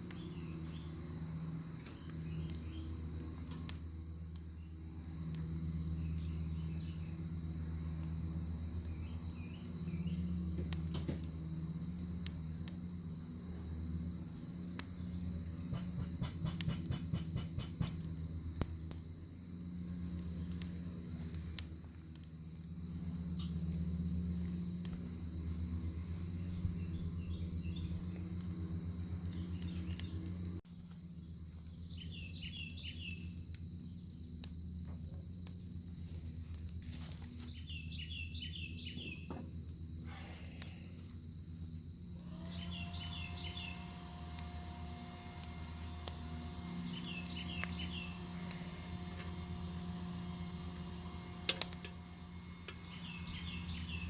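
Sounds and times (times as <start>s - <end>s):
fire crackling and popping: 0.0s - 38.6s, 43.3s - 54.0s.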